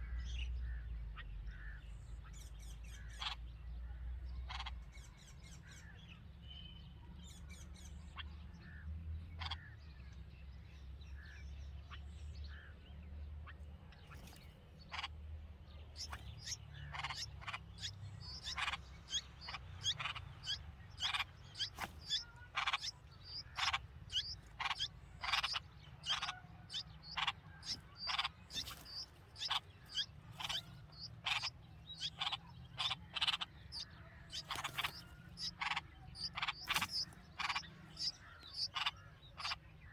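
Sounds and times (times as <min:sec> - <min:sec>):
bird chirping sharp notes: 0:16.0 - 0:39.9.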